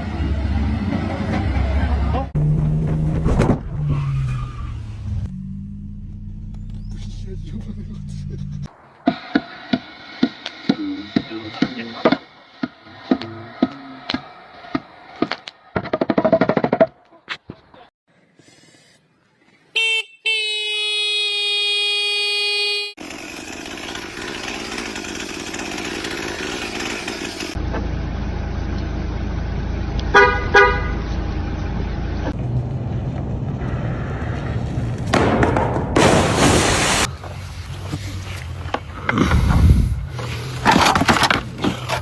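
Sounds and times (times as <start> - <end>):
low engine rumble: 0.0 - 8.8
vehicle horn honking: 19.7 - 23.0, 30.1 - 31.0.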